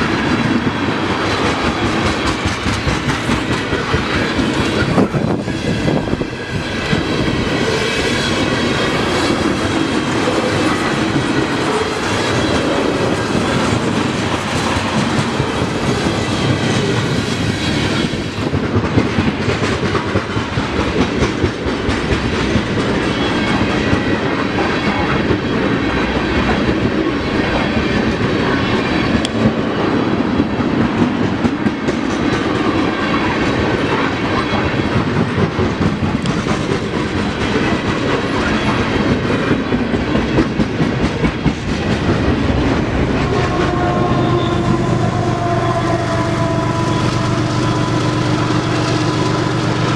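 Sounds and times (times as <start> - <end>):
train rumble: 0.0 - 49.9
train wheels clicking over rail joints: 0.0 - 49.9
faint high wheel squeal: 43.8 - 48.1.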